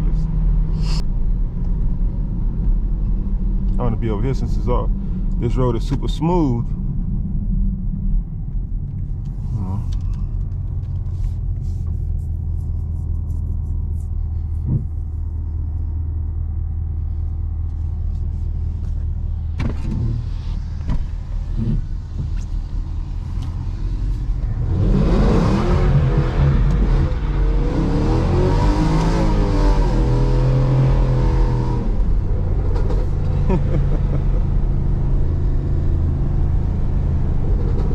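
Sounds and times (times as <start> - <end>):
car engine revving: 19.4 - 37.9.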